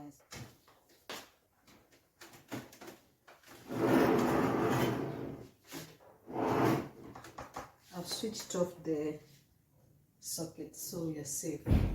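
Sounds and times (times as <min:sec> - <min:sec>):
plastic drawer sliding and scraping: 0:03.5 - 0:07.2.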